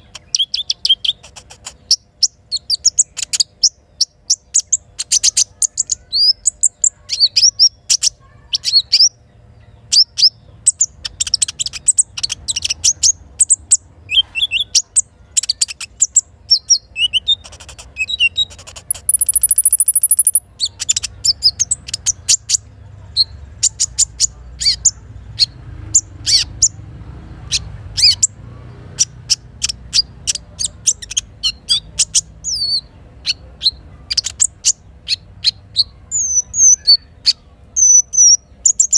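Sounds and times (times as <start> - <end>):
high buzzing bird trill: 0.0 - 26.9, 27.5 - 38.9
bird chirping rapidly: 0.0 - 38.9.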